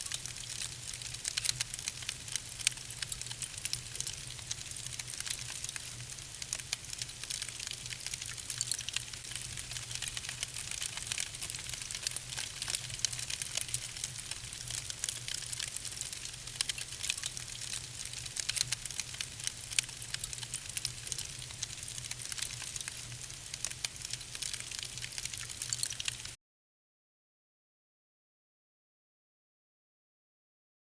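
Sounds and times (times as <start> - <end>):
logs crackling and popping: 0.0 - 26.4.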